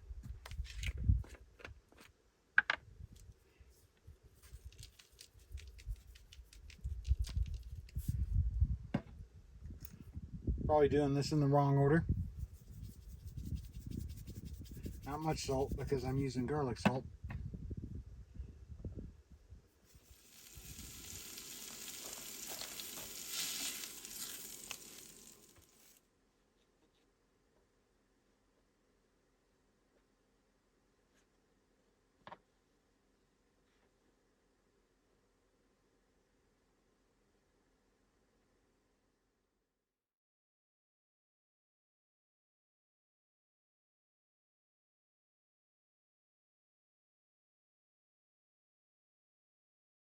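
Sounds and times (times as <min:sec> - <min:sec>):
food sizzling in butter: 0:19.9 - 0:26.0
seasoning grains pattering: 0:19.9 - 0:26.0.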